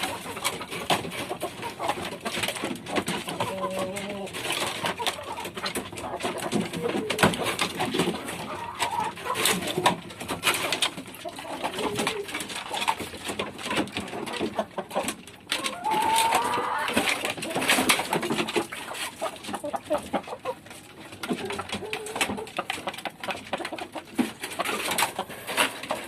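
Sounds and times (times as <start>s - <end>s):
chickens clucking: 0.0s - 26.0s
chicken wavering call: 15.6s - 17.0s.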